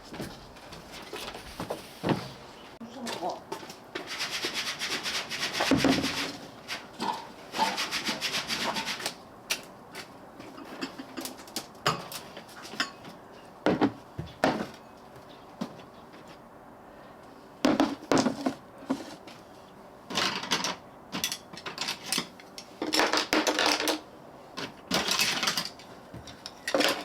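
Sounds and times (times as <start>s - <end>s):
fast scraping strokes: 4.0s - 6.9s, 7.5s - 9.2s.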